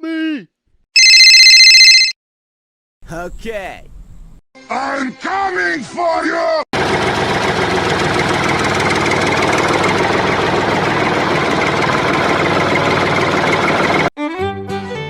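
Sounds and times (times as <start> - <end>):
tractor engine knocking: 6.8 - 14.1
fiddle and guitar music: 14.2 - 15.0.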